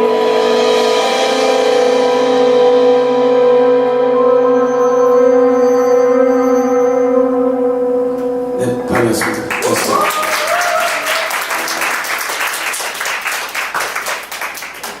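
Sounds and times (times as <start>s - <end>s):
audience clapping: 8.9s - 15.0s
audience cheering: 9.0s - 15.0s.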